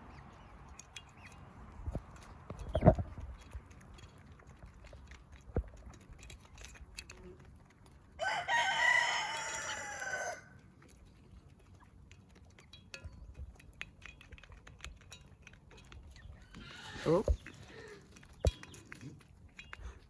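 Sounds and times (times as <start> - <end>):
rooster crowing: 8.2 - 10.5.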